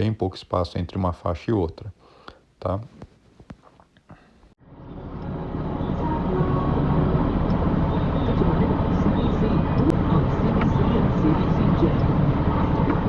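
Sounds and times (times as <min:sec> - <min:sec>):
truck road noise rumbling: 0:04.6 - 0:13.0.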